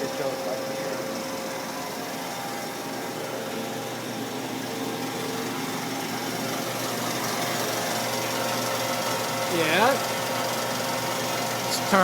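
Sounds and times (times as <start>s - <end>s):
band saw humming: 0.0s - 12.0s.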